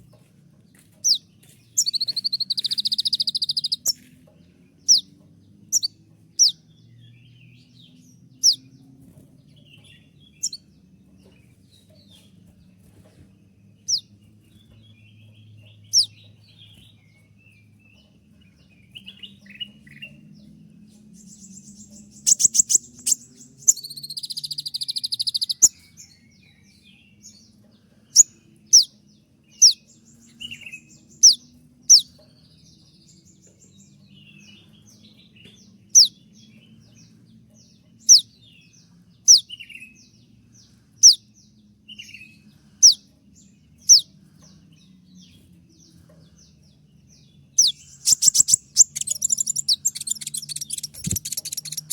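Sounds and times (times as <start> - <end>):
bird trill: 1.8 - 4.1, 4.8 - 6.6, 9.9 - 10.7, 15.7 - 16.8, 21.2 - 27.4, 28.1 - 32.3, 35.8 - 36.7, 38.0 - 38.6, 39.3 - 40.0, 43.8 - 44.1, 47.5 - 51.9
faint low hum: 43.4 - 51.9.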